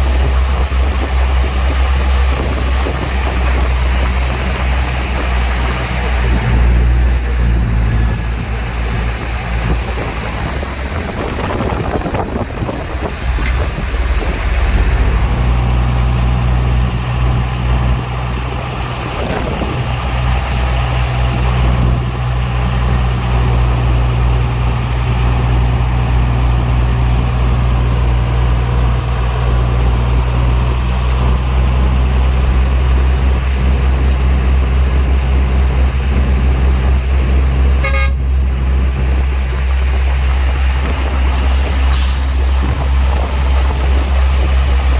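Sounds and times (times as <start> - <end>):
heavy diesel engine droning: 0.0 - 44.9.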